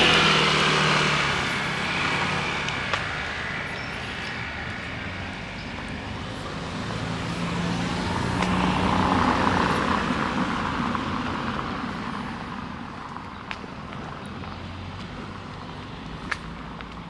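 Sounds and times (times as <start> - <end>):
car driving past: 0.0 - 11.3.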